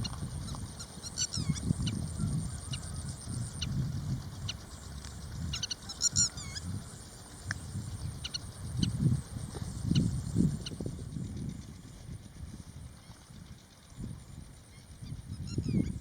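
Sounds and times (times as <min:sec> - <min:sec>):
marsh birds chirping: 0:00.0 - 0:11.9.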